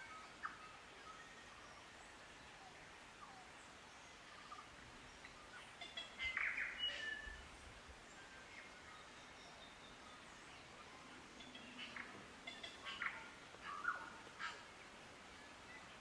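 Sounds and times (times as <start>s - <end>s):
forest birds calling: 0.0s - 16.0s.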